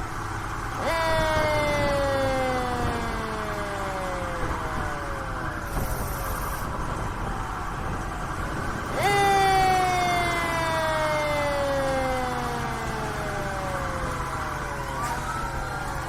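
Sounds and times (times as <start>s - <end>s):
mechanical siren wailing: 0.0s - 16.0s
truck engine running: 0.0s - 16.0s.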